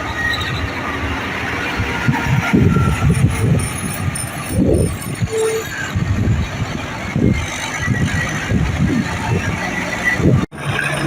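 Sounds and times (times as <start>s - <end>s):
heavy vehicle engine rumbling: 0.0s - 11.0s.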